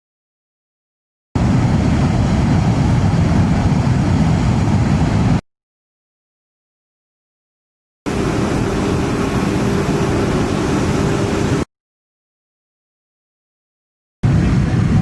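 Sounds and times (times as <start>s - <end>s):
machinery rushing with low hum: 1.4s - 5.4s, 8.1s - 11.7s, 14.2s - 15.0s.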